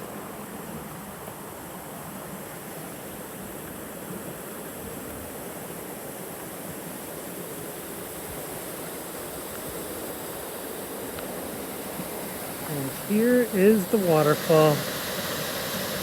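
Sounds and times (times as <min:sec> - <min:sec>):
waterfall rushing: 0:12.2 - 0:16.0.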